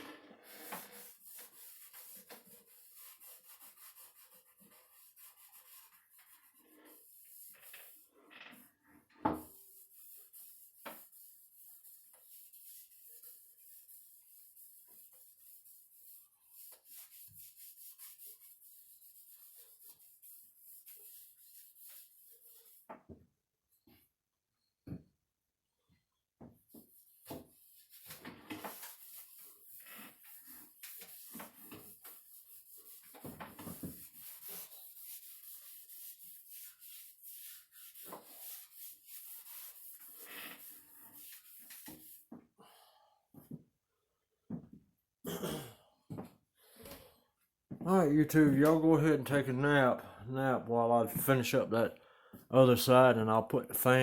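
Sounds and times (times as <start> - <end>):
hand rubbing on wood: 0.5 - 8.7, 9.5 - 22.9, 26.8 - 42.3.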